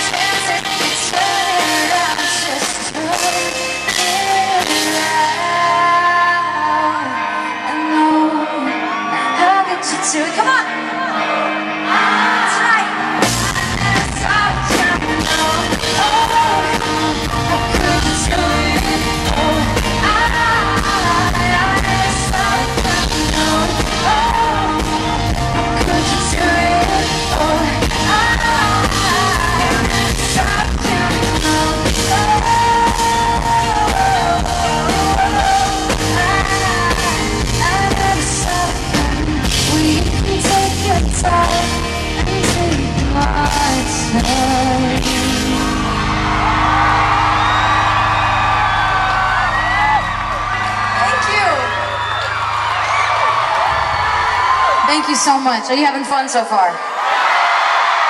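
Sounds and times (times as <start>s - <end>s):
woman singing: 0.0s - 45.9s
rock band playing: 0.0s - 55.5s.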